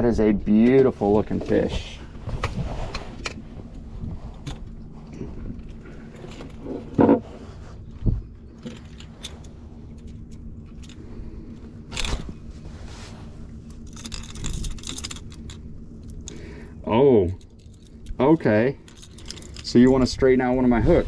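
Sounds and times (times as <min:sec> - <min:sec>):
steady low hum: 0:00.0 - 0:21.0
fish knocking and scraping on boat: 0:06.4 - 0:08.8.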